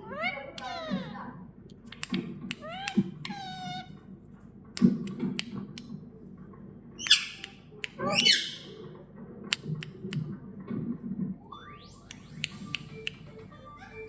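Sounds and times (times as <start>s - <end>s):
parrot squawking: 0.0s - 1.2s, 2.5s - 4.0s, 7.0s - 8.8s
sharp clicks: 1.8s - 3.1s.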